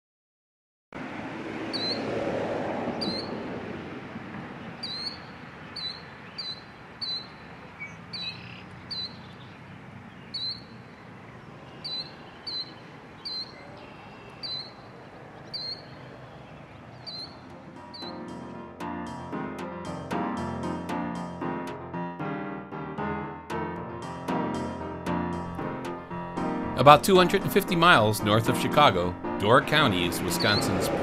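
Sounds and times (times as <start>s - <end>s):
small bird chirping: 1.7s - 2.0s, 3.0s - 3.4s, 4.6s - 18.3s
outdoor background hiss: 3.3s - 17.8s.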